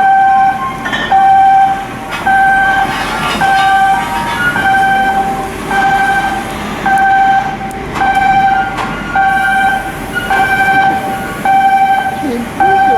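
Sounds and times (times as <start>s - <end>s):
warning beeper beeping: 4.6s - 12.9s.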